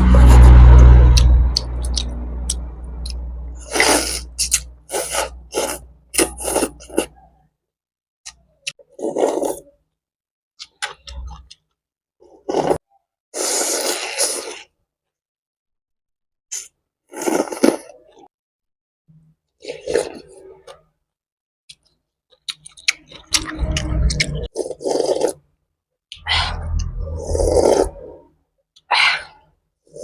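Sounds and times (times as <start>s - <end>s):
low rumble: 0.0s - 5.6s, 23.2s - 24.5s
noisy slurping: 0.0s - 7.2s, 8.8s - 9.7s, 12.3s - 12.8s, 13.4s - 14.7s, 16.6s - 18.2s, 19.6s - 20.8s, 22.5s - 25.4s, 26.1s - 28.2s.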